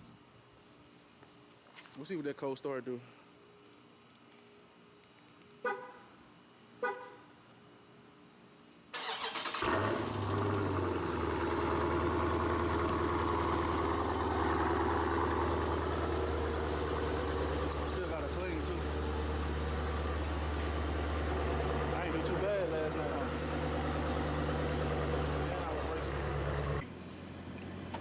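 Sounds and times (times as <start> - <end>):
car horn chirps: 5.6 - 6.0
car engine starting and idling: 9.0 - 28.0.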